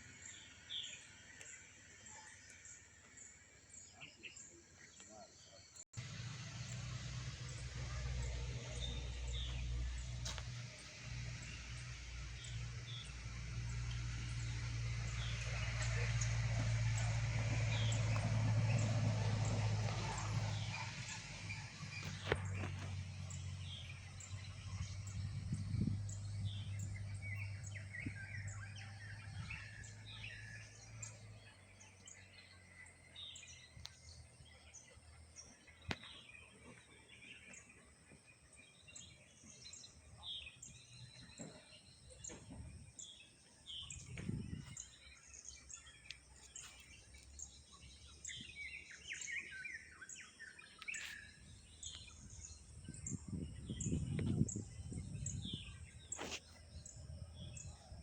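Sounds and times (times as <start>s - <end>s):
birds chirping and calling: 38.9s - 58.0s.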